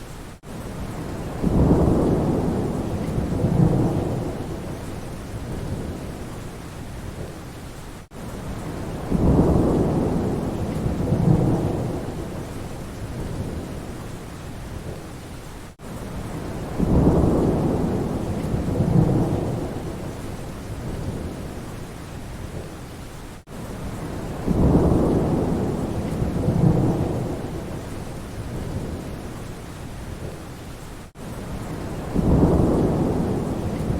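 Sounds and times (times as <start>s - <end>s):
steady rain: 0.0s - 33.9s
thunder rumbling: 0.8s - 6.3s, 8.6s - 13.9s, 16.2s - 21.6s, 23.9s - 29.4s, 31.5s - 33.9s.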